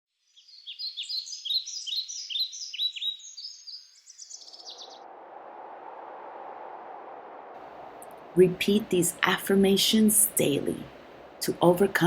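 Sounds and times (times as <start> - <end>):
birds chirping: 0.2 - 5.6
wind rushing: 4.7 - 12.0.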